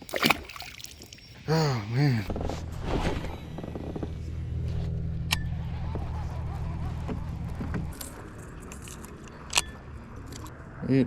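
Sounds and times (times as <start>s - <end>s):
low motor hum: 2.3s - 10.5s.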